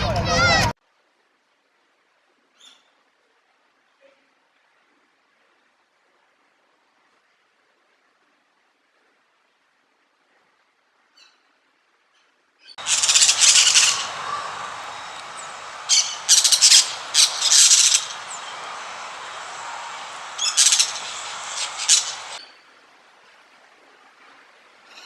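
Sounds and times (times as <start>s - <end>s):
background noise: 0.0s - 25.0s
parrot squawking: 12.8s - 22.4s.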